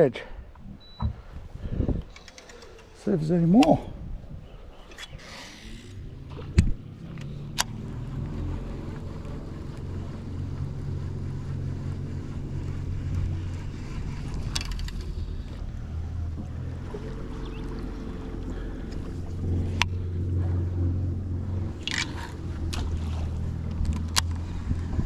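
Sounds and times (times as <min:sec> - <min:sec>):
electric trolling motor humming: 0:05.2 - 0:25.0.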